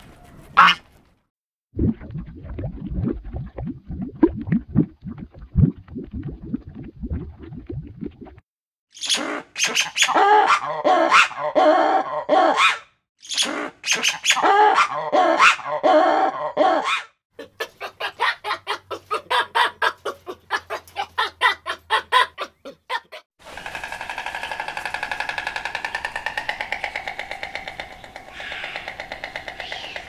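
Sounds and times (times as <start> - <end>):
wavering pitched animal calls: 23.8 - 30.0.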